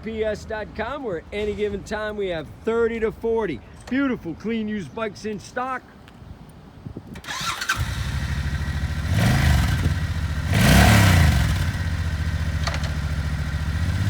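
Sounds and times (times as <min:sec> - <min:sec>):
motorcycle engine revving: 0:07.2 - 0:14.0
motorcycle engine idling: 0:07.3 - 0:14.0.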